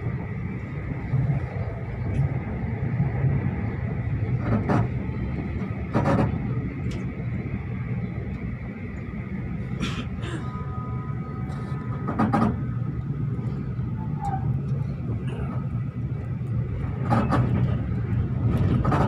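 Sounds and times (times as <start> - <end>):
train wheels rumbling on track: 0.0 - 19.0
wheel-on-rail clatter: 16.8 - 19.0.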